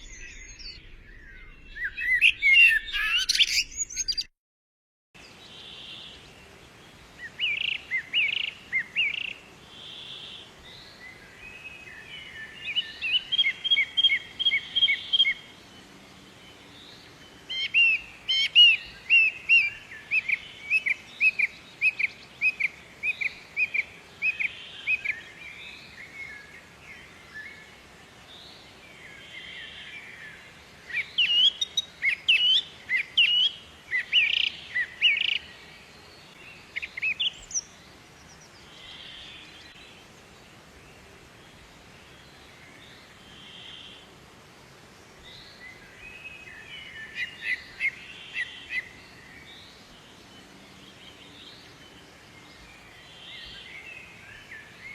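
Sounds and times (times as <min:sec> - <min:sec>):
songbird chirping: 0:00.0 - 0:04.3, 0:05.2 - 0:54.9.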